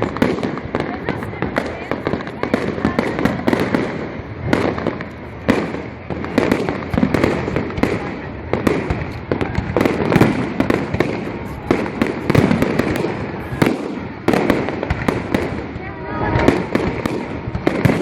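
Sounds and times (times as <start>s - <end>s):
echoing rumble: 9.4s - 18.0s.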